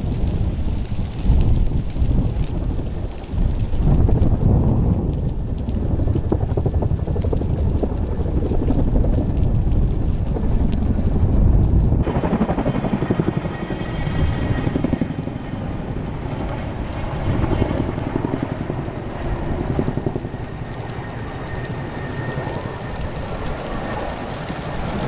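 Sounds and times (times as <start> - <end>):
helicopter rotor beating: 0.0 - 25.0.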